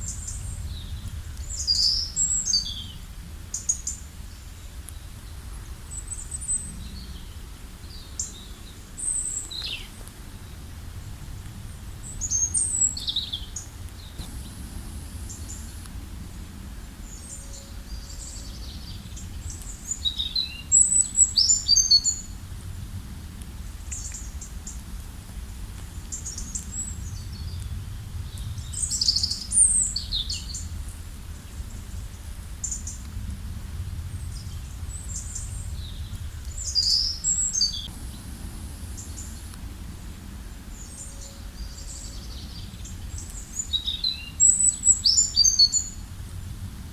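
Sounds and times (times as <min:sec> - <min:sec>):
low background rush: 0:13.6 - 0:20.0, 0:30.7 - 0:43.7.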